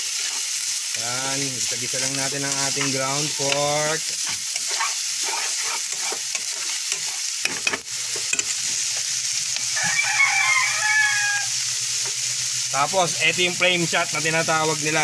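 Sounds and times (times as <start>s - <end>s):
spatula scraping a pan: 0.0s - 0.6s, 1.6s - 8.8s
meat sizzling in a frying pan: 0.0s - 15.0s
rooster crowing: 9.6s - 11.6s.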